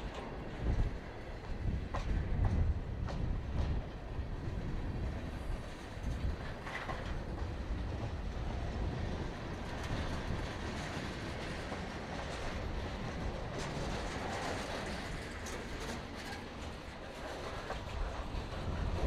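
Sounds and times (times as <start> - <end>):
train wheels rumbling on rails: 0.0 - 19.0
clicks and clanks from cars: 9.6 - 18.7.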